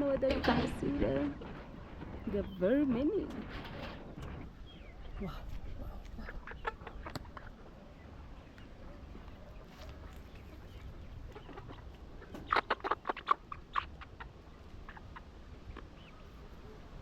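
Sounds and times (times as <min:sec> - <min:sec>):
chickens calling: 0:00.0 - 0:17.0.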